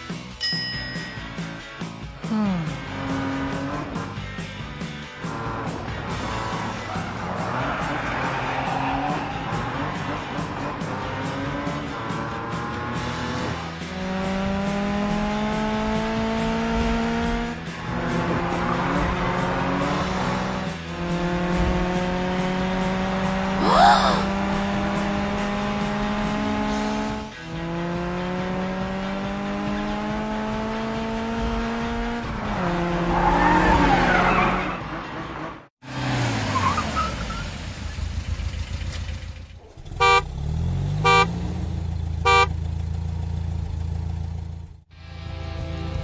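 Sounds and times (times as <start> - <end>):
cartoon engine revving: 23.4 - 25.2
horn toots: 39.7 - 41.5, 42.2 - 42.6.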